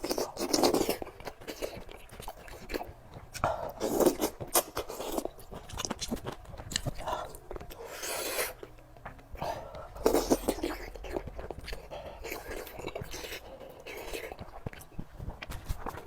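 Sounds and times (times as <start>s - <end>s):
person chewing food: 0.0s - 16.0s
breathy hiss: 11.7s - 14.0s.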